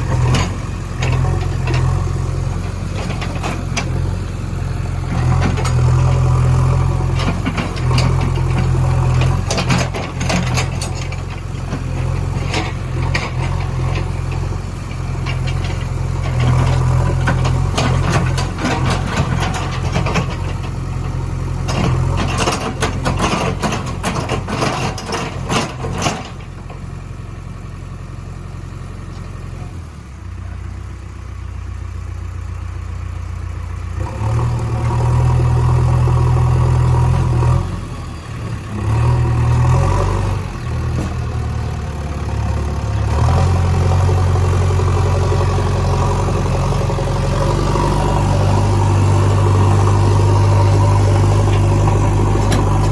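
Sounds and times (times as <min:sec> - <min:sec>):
machinery clattering and knocking: 0:00.0 - 0:04.2, 0:05.1 - 0:26.8, 0:42.8 - 0:52.9
diesel engine running: 0:00.0 - 0:52.9.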